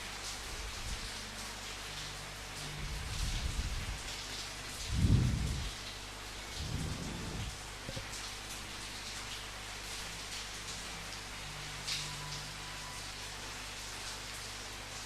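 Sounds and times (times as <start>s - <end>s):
steady rain falling: 0.0s - 15.0s
low rumbles of thunder: 4.9s - 5.8s, 6.5s - 8.0s.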